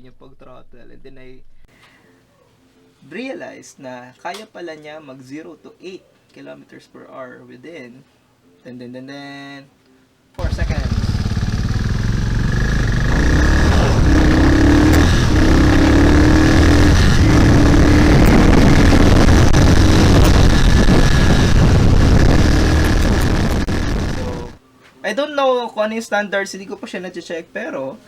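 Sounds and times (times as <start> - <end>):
motorcycle accelerating through gears: 10.4 - 24.6
wind rush: 12.7 - 24.6.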